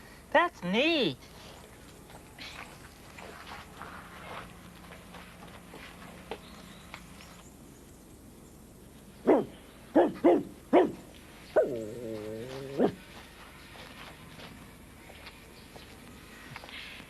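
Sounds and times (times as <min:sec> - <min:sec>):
person imitating dog barks: 0:09.3 - 0:11.0.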